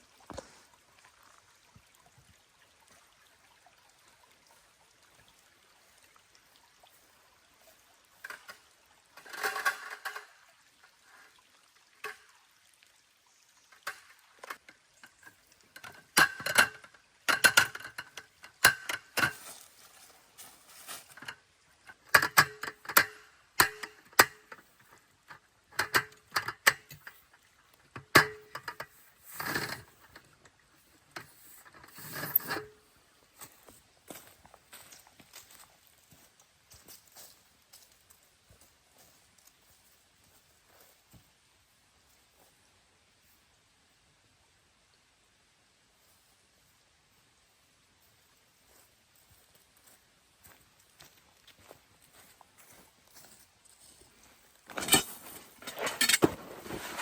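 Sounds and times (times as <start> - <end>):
objects knocking and clattering: 13.8 - 19.5, 54.7 - 57.0
short rustles: 54.7 - 57.0.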